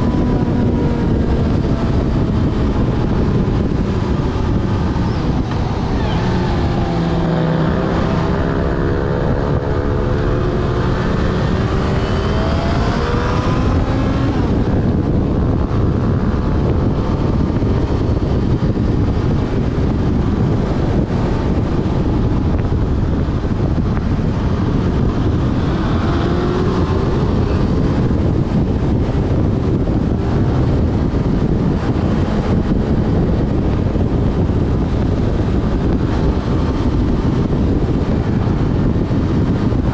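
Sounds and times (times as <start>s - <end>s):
motorcycle engine accelerating: 0.0s - 39.9s
wind rush on microphone: 0.0s - 39.9s.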